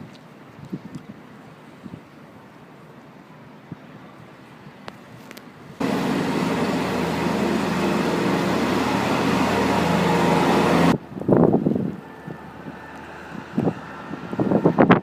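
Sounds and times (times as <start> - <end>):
broad roar: 5.8 - 11.0
loud engine running: 5.8 - 11.0.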